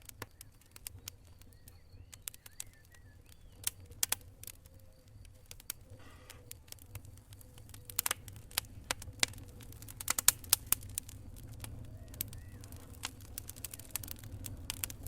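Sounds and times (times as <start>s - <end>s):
faint high whistles: 0.0s - 15.0s
low rumble of flames: 0.0s - 15.0s
wood fire crackling and popping: 0.0s - 15.0s.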